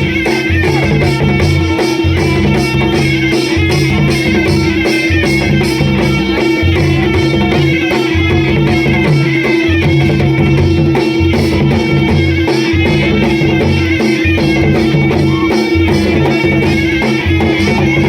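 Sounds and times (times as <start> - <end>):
driving drum beat: 0.0 - 18.0
reedy melody: 0.0 - 18.0.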